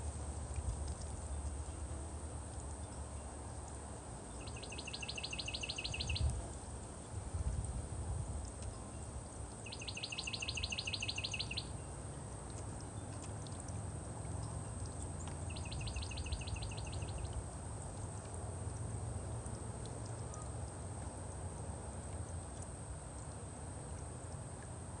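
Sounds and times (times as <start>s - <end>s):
songbird trilling: 4.4s - 6.4s, 9.6s - 11.7s, 15.2s - 17.4s.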